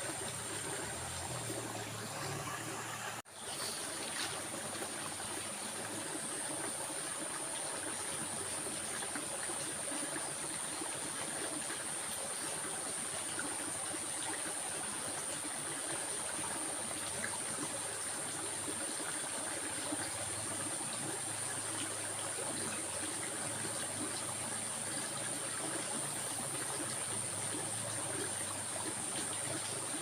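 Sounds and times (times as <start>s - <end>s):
stream water running: 0.0s - 30.0s.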